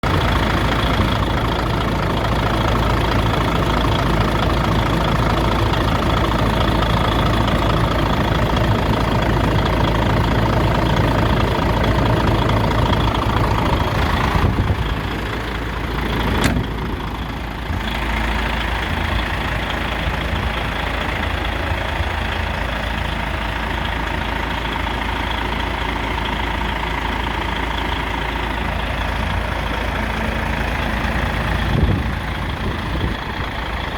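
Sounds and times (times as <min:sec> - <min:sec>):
diesel truck engine idling: 0:00.0 - 0:33.9
sharp click: 0:16.4 - 0:16.7.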